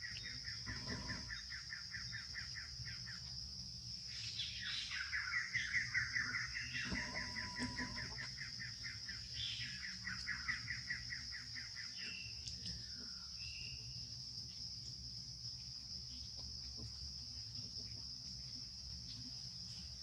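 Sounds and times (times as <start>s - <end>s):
bird chirping: 0.0s - 3.2s, 4.2s - 12.5s
insects droning: 0.0s - 20.0s.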